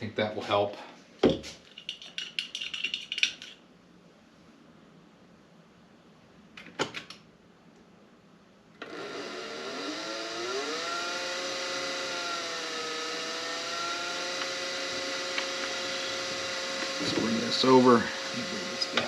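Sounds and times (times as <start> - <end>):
handling clicks and rattles: 1.6 - 3.6
spindle motor whining: 8.8 - 19.0.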